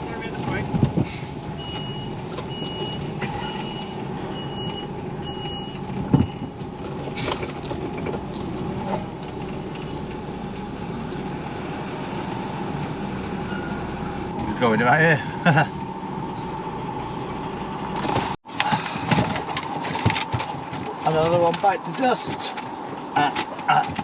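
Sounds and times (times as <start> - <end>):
diesel engine running: 0.0 - 24.0
reversing alarm beeping: 1.6 - 6.5.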